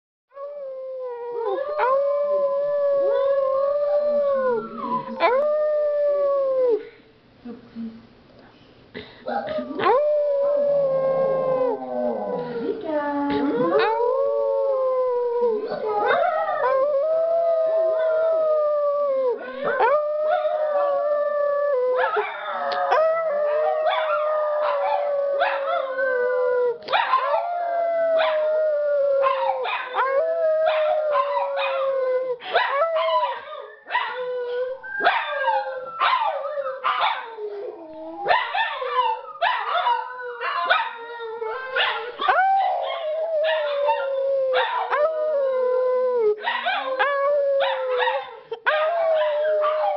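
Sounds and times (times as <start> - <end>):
dogs howling: 9.4 - 49.9
dogs yipping and barking: 35.0 - 37.4, 46.4 - 49.9.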